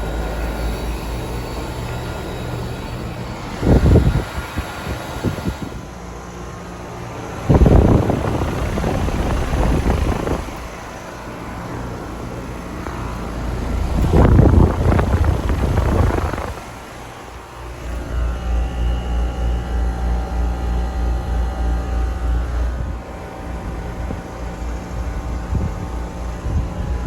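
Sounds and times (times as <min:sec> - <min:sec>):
loud rushing air: 0:00.0 - 0:18.0
compressor hum: 0:00.0 - 0:27.0
condenser fan rushing: 0:00.0 - 0:27.0.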